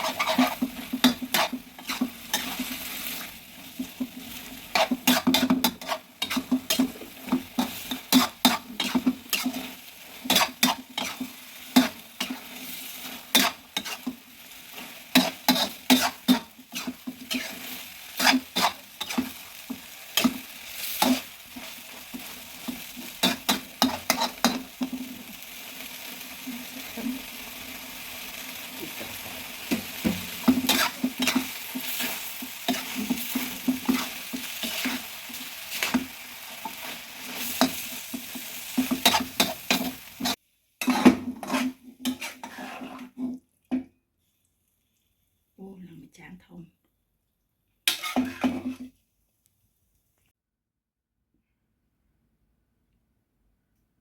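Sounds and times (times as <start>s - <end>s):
spatula clacking and scraping pan: 0.0s - 25.4s, 29.0s - 43.9s, 47.9s - 48.9s
mushrooms sizzling: 0.0s - 43.2s.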